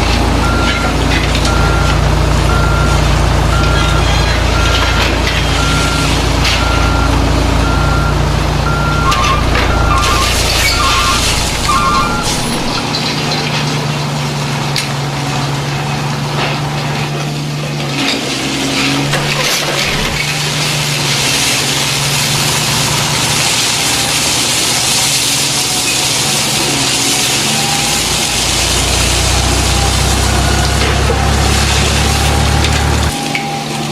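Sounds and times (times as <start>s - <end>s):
engine hum: 0.0s - 33.9s
reversing beeps: 0.4s - 12.8s, 27.4s - 28.5s, 29.7s - 33.9s.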